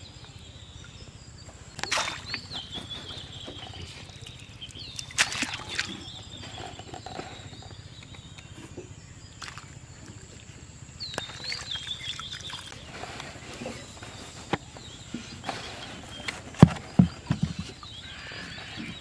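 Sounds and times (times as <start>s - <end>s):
bird call: 0.0s - 10.4s, 11.0s - 19.0s.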